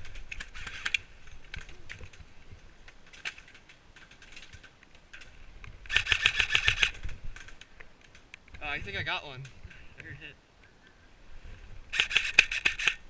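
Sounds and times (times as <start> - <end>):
airsoft gun firing full auto: 5.9 - 7.0, 11.9 - 13.0.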